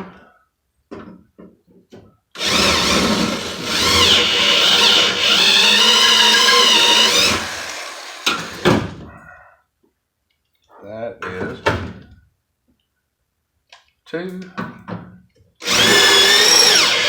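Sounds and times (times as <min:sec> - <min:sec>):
power drill cutting metal: 0:02.4 - 0:08.8, 0:15.6 - 0:17.0.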